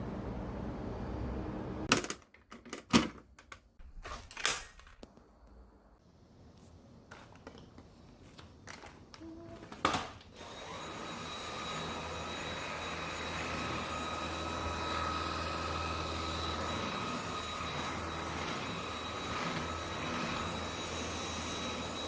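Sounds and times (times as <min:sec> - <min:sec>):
vacuum cleaner running: 0:10.3 - 0:22.0.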